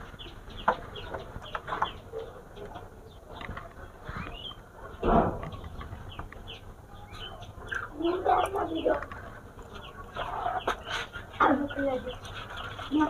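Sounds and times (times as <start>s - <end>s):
small birds chirping: 0.0s - 13.0s
thump: 5.0s - 5.5s.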